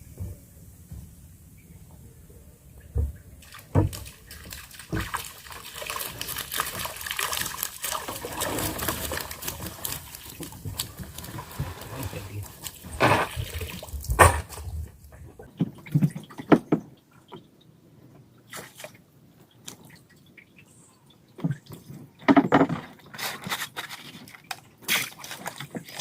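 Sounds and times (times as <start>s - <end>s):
water splashing and dripping: 2.9s - 26.0s.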